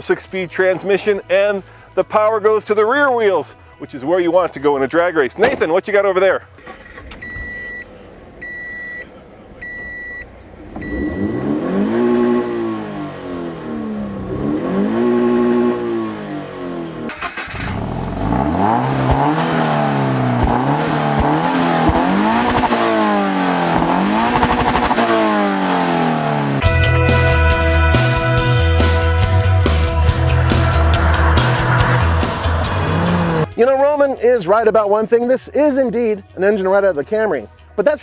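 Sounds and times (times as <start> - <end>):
car chime beep: 7.2 - 11.6
car engine revving: 10.3 - 33.5
rock music: 26.4 - 33.8.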